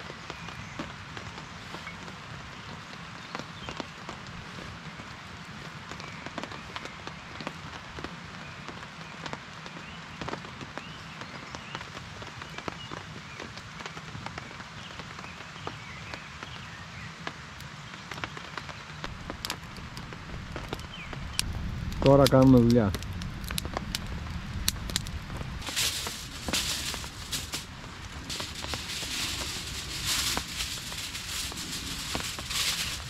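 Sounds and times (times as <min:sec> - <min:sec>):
rain hissing: 0:18.4 - 0:33.0
raindrops ticking: 0:18.6 - 0:33.0.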